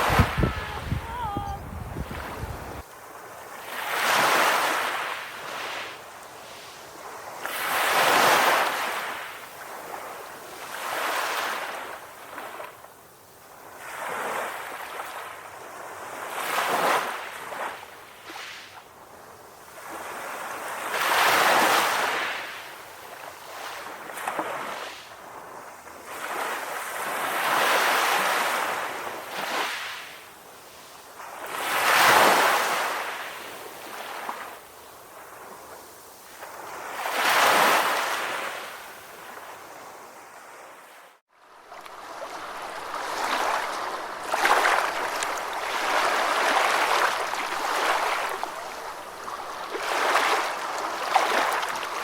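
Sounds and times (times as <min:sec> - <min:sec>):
ocean waves breaking: 0:00.0 - 0:12.7, 0:40.9 - 0:52.0.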